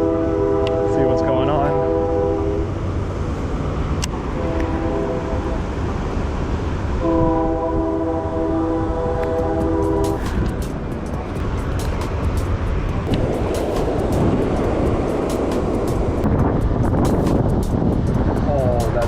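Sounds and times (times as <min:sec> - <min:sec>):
train horn blasts: 0:00.0 - 0:02.8, 0:04.3 - 0:05.7, 0:07.0 - 0:10.4
steady low noise: 0:00.0 - 0:19.0.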